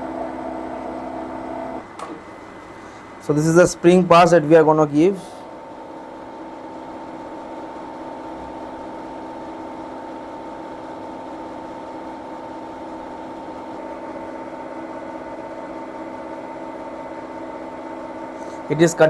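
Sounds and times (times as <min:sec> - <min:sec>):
milling machine hum: 0:00.0 - 0:19.0.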